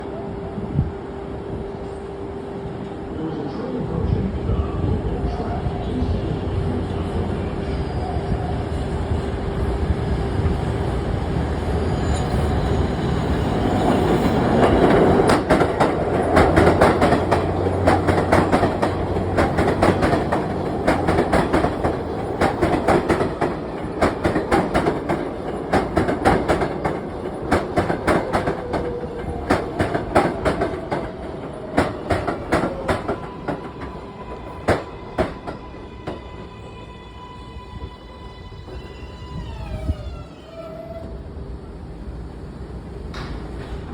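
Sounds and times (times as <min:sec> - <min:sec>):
subway train pulling in: 0:00.0 - 0:43.9
train wheels clicking over rail joints: 0:14.0 - 0:36.4.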